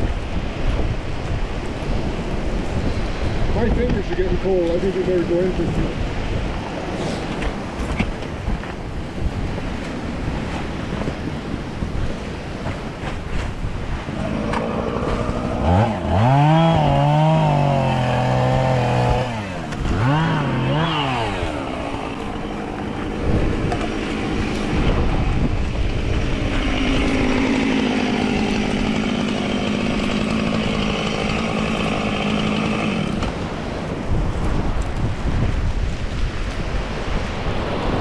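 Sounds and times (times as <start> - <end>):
wind rushing across microphone: 0.0 - 32.3, 32.9 - 38.0
engine revving: 14.1 - 33.4.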